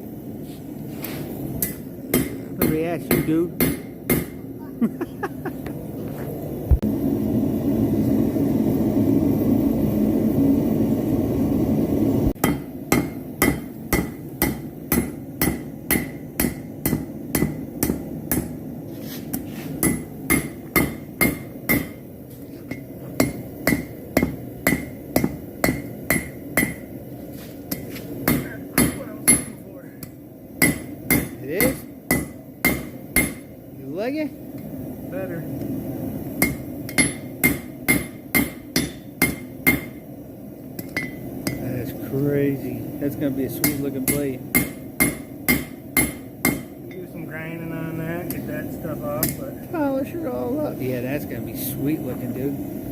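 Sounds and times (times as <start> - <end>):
hammer striking steel on anvil: 1.6 - 4.5, 12.4 - 18.6, 19.3 - 22.0, 22.7 - 27.0, 27.7 - 33.6, 36.4 - 40.2, 40.8 - 41.7, 43.6 - 47.1, 49.2 - 49.4.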